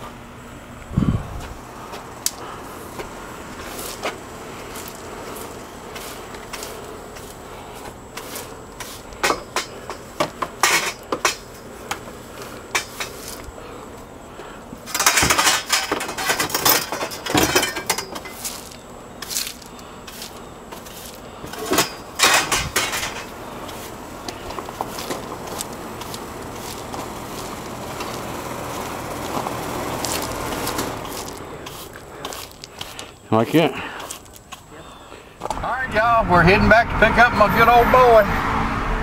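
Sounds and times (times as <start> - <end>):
hard objects clattering: 2.0 - 13.6, 14.8 - 33.2.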